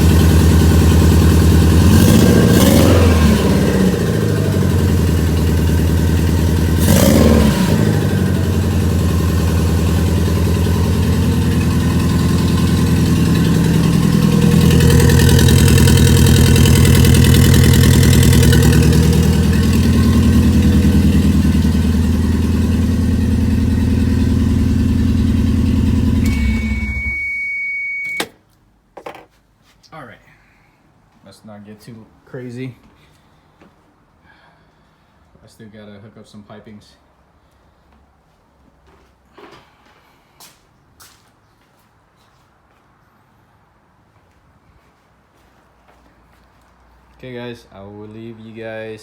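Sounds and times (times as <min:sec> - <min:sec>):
car engine running: 0:00.0 - 0:27.5.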